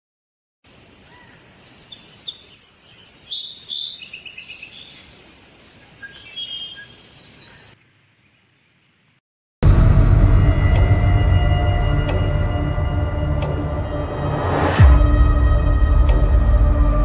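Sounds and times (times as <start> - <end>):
faint outdoor hiss: 0.6 - 9.2
wild birds chirping: 0.6 - 9.2
loud music: 9.6 - 17.0.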